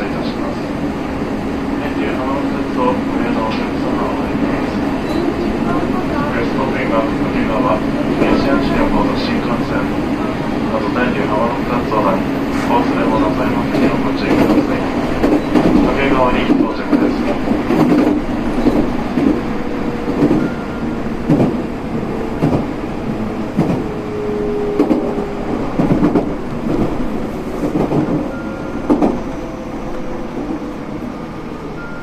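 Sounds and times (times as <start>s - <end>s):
train cabin rumble: 0.0s - 32.0s.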